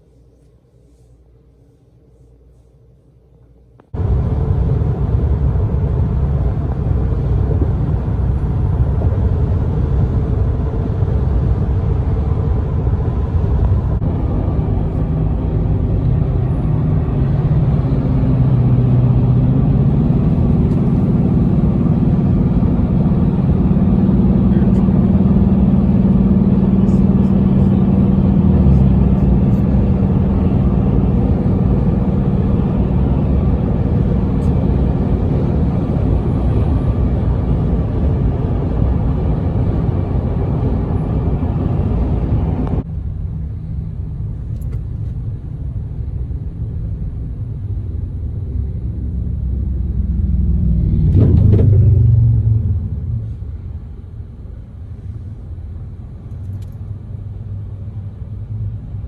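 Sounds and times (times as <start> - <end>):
road rumble: 0.0 - 59.0
vehicle engine humming: 0.0 - 59.0
vehicle passing loudly: 4.0 - 42.9, 48.6 - 53.6.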